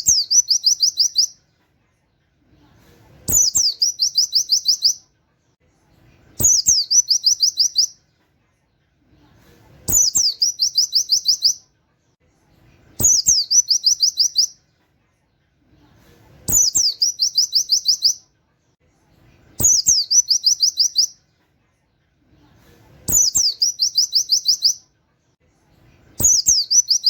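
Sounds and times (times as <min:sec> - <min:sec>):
bird singing: 0:00.0 - 0:01.4, 0:03.3 - 0:05.0, 0:06.4 - 0:08.0, 0:09.9 - 0:11.6, 0:13.0 - 0:14.6, 0:16.5 - 0:18.2, 0:19.6 - 0:21.2, 0:23.1 - 0:24.8, 0:26.2 - 0:27.0.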